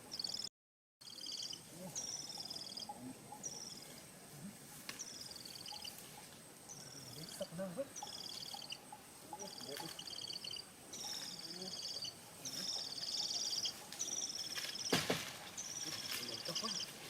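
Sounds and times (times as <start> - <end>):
parrot trilling calls: 6.7 - 14.9.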